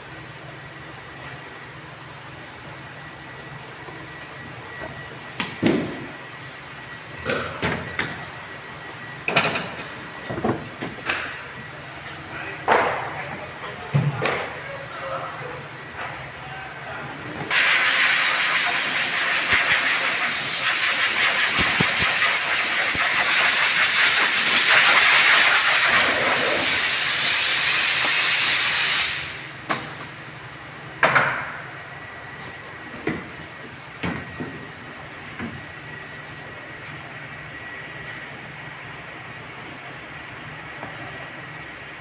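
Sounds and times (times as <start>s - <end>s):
compressed air hissing: 17.5s - 29.4s.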